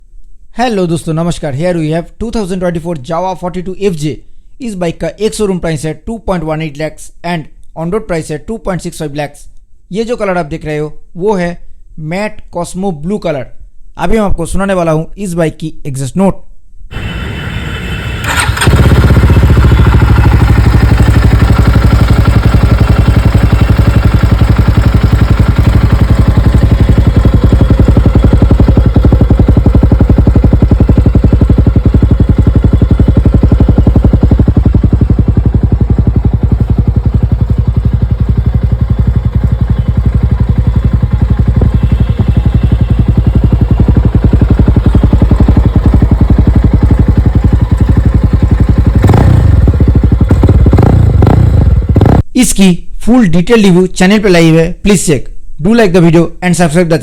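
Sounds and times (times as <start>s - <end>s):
motorcycle engine idling: 16.9s - 52.2s.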